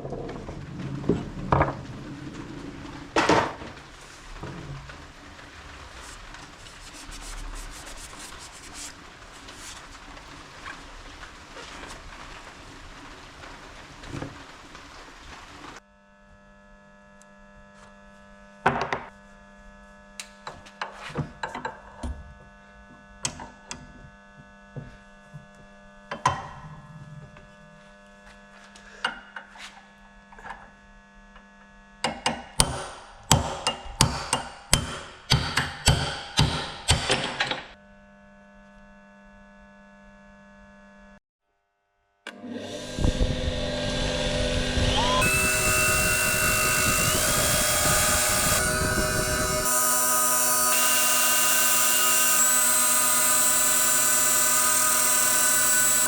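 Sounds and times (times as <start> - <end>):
electrical hum: 42.4 - 56.0.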